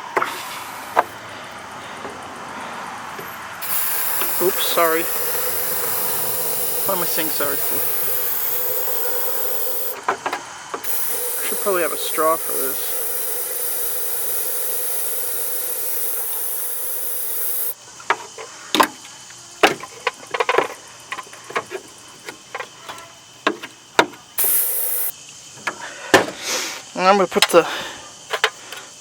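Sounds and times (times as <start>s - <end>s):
aerosol spray hissing: 3.6s - 10.0s, 10.8s - 17.8s, 24.4s - 25.2s.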